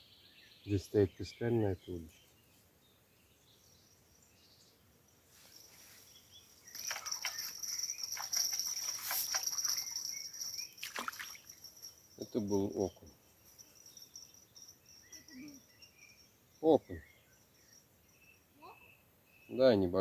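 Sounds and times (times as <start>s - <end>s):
crickets chirring: 3.4s - 20.0s.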